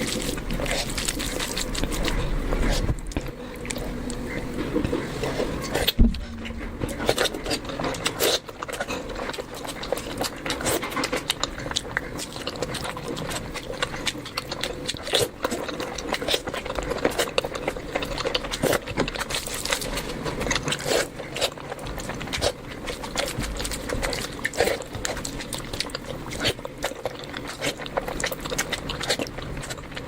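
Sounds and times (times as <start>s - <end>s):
chewing and mouth smacks: 0.0s - 30.0s
sharp knock: 6.0s - 7.2s.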